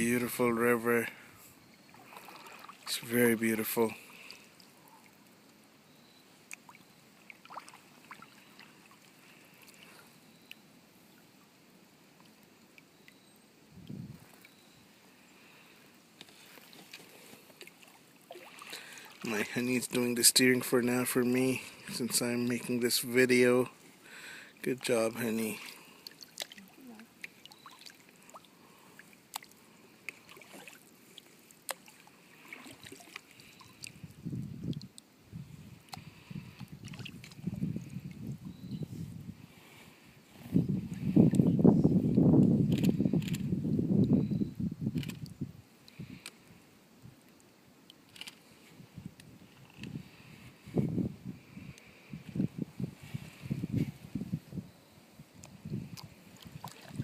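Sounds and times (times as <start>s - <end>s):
water dripping off paddle: 1.9s - 2.9s, 6.5s - 9.9s, 16.2s - 19.3s, 25.6s - 34.1s, 55.4s - 57.0s.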